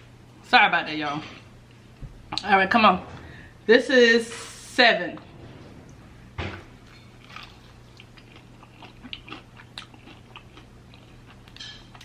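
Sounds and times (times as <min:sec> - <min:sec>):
chewing: 0:07.2 - 0:12.0.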